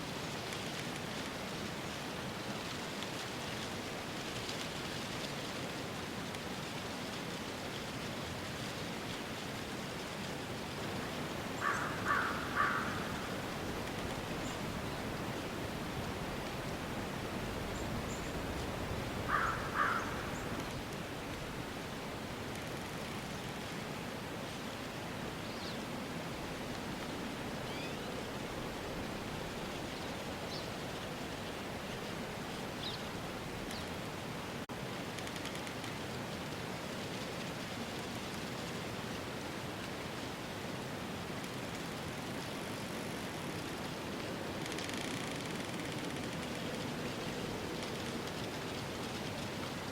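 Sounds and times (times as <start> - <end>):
rain hiss: 0.0 - 49.9
rushing outdoor ambience: 0.1 - 49.9
crow cawing: 11.6 - 13.5, 19.3 - 20.6.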